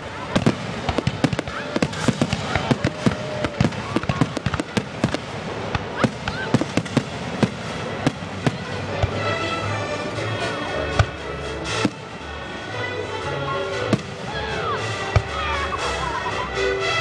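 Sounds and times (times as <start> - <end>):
fireworks banging and crackling: 0.0 - 15.9
music playing: 7.2 - 17.0.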